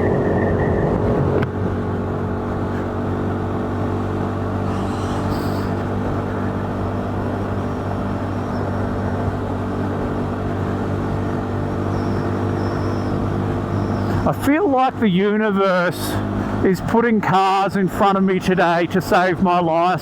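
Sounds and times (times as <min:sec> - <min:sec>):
wind noise: 0:00.0 - 0:14.3
motorcycle engine running: 0:00.0 - 0:16.7.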